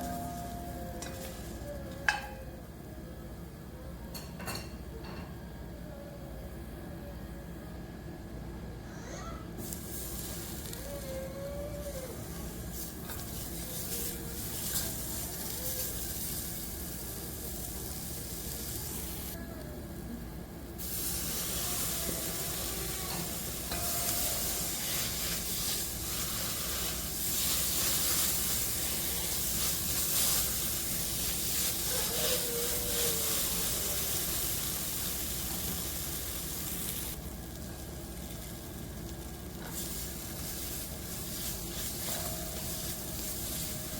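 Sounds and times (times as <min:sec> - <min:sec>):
food sizzling in hot oil: 0:09.6 - 0:11.0, 0:12.2 - 0:19.4, 0:20.8 - 0:43.9.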